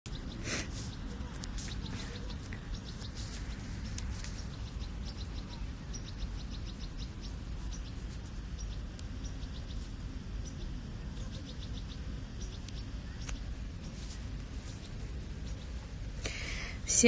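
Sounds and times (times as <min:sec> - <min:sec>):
small birds chirping: 0:00.1 - 0:17.0.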